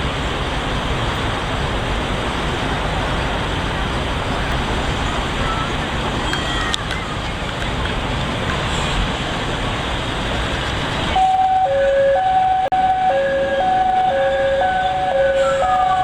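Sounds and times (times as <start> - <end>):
steady rushing noise: 0.0 - 16.0
hi-lo emergency siren: 11.1 - 16.0.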